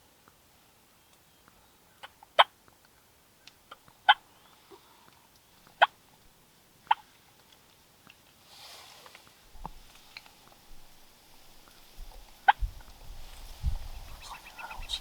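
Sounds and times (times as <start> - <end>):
turkey clucks: 3.7 - 4.3, 6.8 - 7.1, 14.0 - 15.0.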